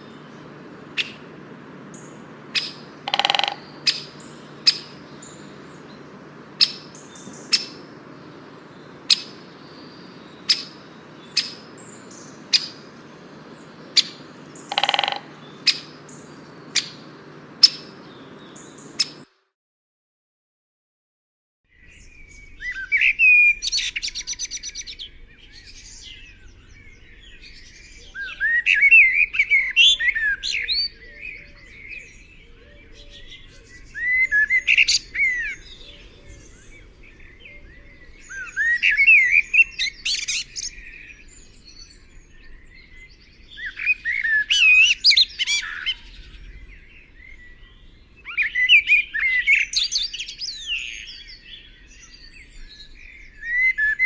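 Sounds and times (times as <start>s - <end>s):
songbird singing: 0.0s - 19.4s, 21.7s - 54.0s.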